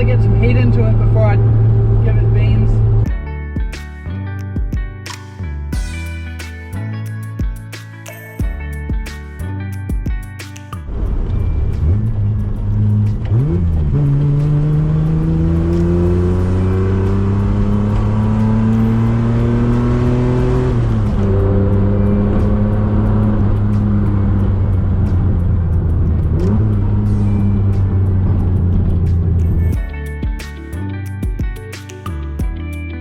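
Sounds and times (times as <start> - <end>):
car engine accelerating: 0.0 - 3.1, 10.8 - 29.8.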